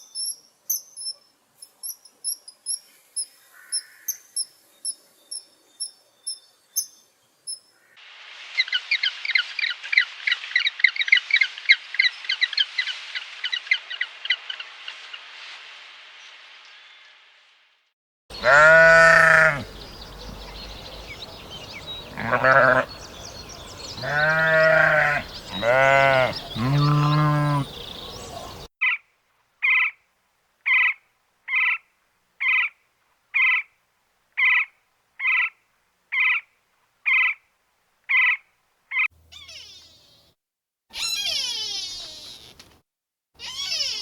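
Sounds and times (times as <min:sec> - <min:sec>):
sheep or goat bleating: 0:18.3 - 0:19.8, 0:22.1 - 0:23.0, 0:24.0 - 0:27.8
short identical animal calls: 0:18.4 - 0:23.0, 0:24.0 - 0:27.8, 0:38.1 - 0:40.3, 0:40.9 - 0:42.7, 0:43.4 - 0:44.0.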